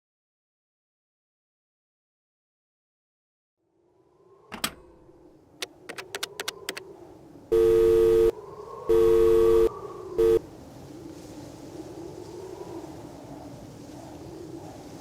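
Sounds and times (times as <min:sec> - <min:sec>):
sharp clicks: 0:05.6 - 0:06.8
telephone two-tone call tone: 0:07.5 - 0:08.3, 0:08.9 - 0:10.4.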